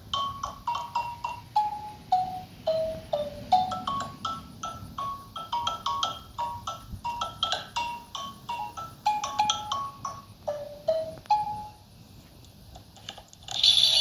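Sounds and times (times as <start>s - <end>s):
xylophone melody: 0.0s - 11.8s.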